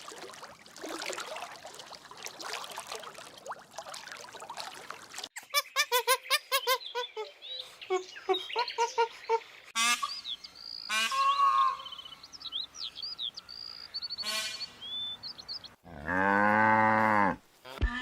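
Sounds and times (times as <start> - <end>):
cow mooing: 15.8 - 17.4.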